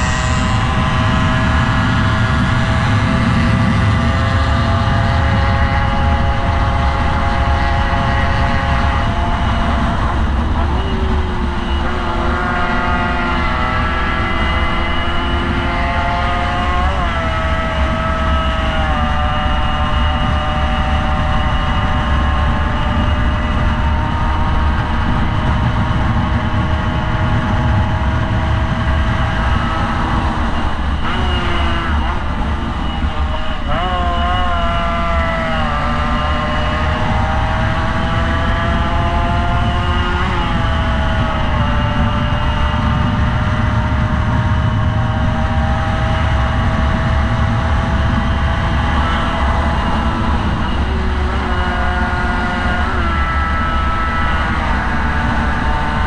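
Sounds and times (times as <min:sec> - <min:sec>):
motorcycle engine running hard: 0:00.0 - 0:56.0
wind rumble on microphone: 0:00.0 - 0:56.0.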